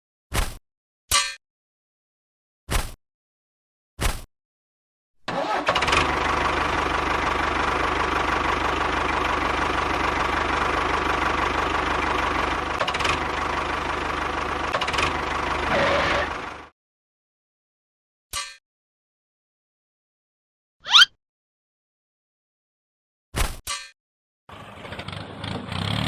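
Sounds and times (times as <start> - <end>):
engine running: 5.3 - 16.7, 24.5 - 26.0.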